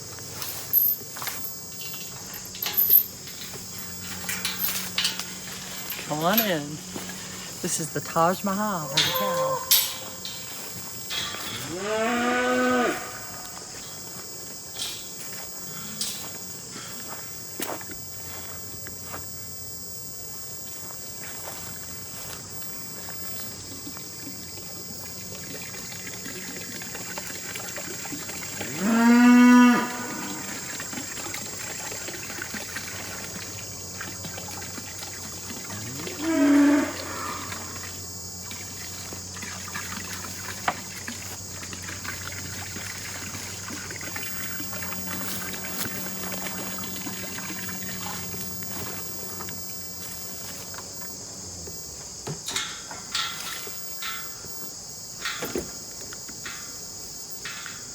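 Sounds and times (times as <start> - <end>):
insects chirring: 0.0 - 57.9
cattle mooing: 8.8 - 10.4, 11.3 - 13.6, 28.7 - 30.6, 35.6 - 37.9.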